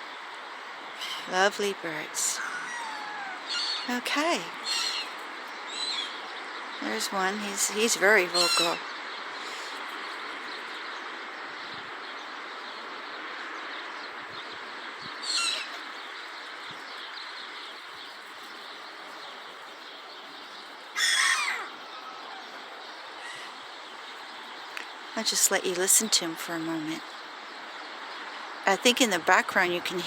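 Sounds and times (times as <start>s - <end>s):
steady background noise: 0.0s - 30.0s
sparrows chirping: 0.9s - 30.0s
gull calling: 2.2s - 5.1s, 7.6s - 8.8s, 21.0s - 22.6s.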